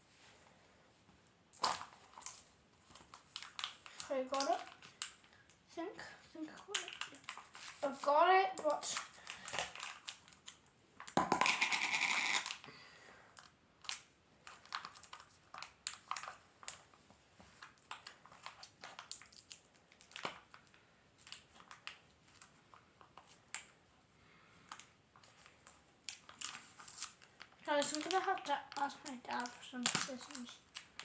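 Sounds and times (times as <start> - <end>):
small clicks and crackles: 1.1 - 12.7, 13.3 - 24.0, 24.6 - 31.0
plastic packaging crinkling: 1.7 - 5.4, 6.6 - 8.1, 13.8 - 16.9, 17.6 - 23.7, 24.7 - 31.0.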